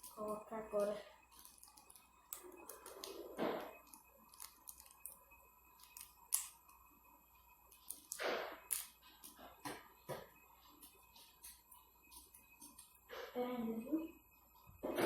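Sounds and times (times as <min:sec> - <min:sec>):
plastic sachet rustling and tearing: 0:01.3 - 0:05.2, 0:05.8 - 0:06.6.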